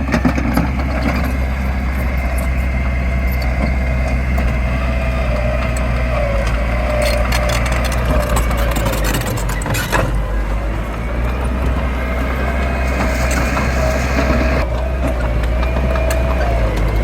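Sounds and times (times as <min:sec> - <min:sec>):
crunching cracking clatter: 0:00.0 - 0:17.0
diesel engine running with whine: 0:00.0 - 0:17.0.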